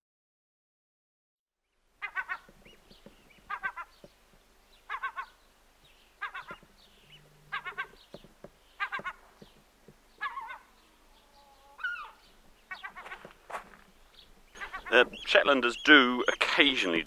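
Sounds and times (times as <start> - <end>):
bird harsh call: 2.0 - 2.5, 3.4 - 4.0, 4.8 - 5.4, 6.2 - 9.3, 10.1 - 13.3, 14.5 - 17.0
fainter higher bird calls: 2.0 - 4.1, 4.8 - 5.5, 6.1 - 13.4, 14.1 - 17.0.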